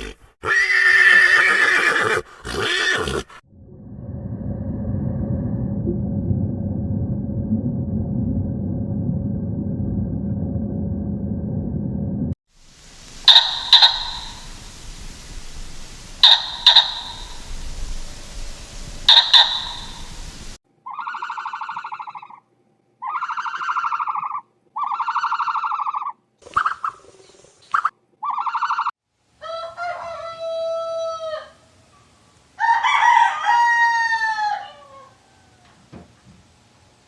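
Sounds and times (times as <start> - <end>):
fowl calling: 13.0 - 22.4.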